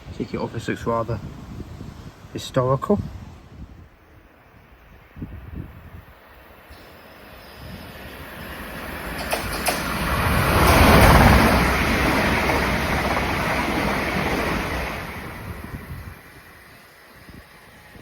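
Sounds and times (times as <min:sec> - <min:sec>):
train wheel and rail noise: 0:00.0 - 0:18.0
sharp clicks: 0:09.2 - 0:10.0.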